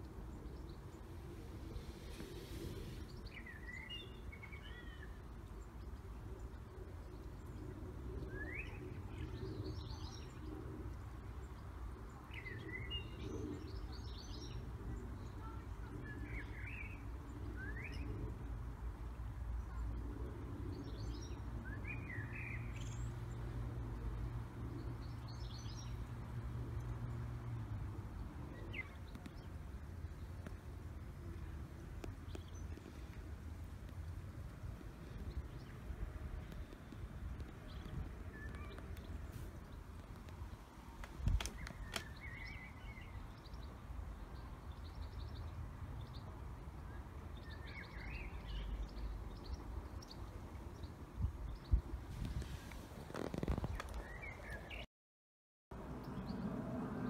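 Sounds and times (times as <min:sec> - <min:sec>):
birds chirping: 0:35.0 - 0:46.2.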